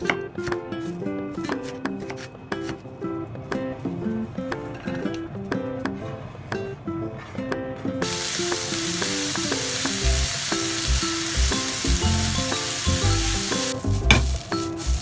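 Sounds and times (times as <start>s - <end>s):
food sizzling in hot oil: 8.0s - 15.0s.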